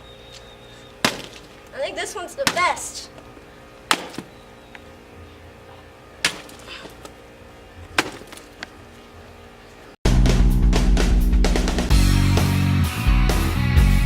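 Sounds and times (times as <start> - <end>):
guitar rock music: 10.1 - 14.0.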